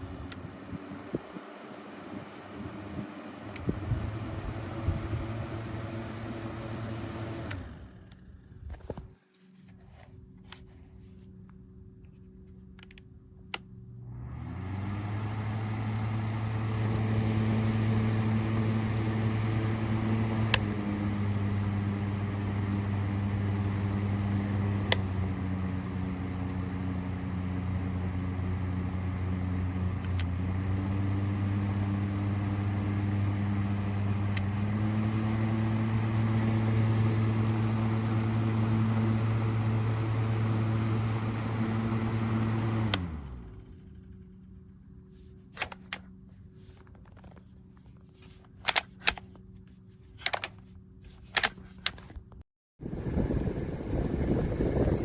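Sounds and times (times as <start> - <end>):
fan motor hum and airflow: 0.0 - 55.0
fan switch click: 20.4 - 20.8.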